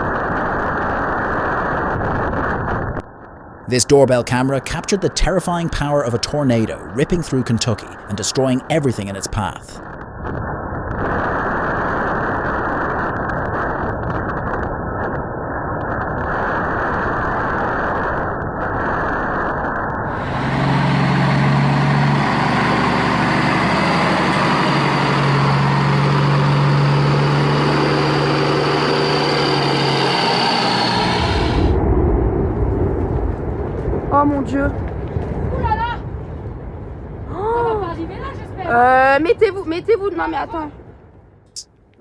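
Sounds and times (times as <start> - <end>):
strong wind blowing: 0.0 - 41.2
low droning hum: 19.9 - 41.5.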